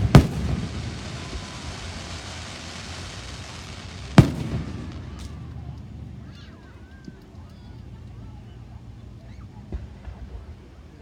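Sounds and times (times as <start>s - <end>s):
loud firework bang: 0.0s - 5.7s
fireworks rushing noise: 0.0s - 8.1s.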